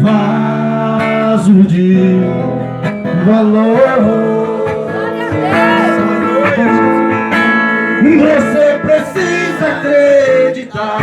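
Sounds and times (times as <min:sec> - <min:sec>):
acoustic guitar: 0:00.0 - 0:11.0
person singing gospel song: 0:03.6 - 0:11.0.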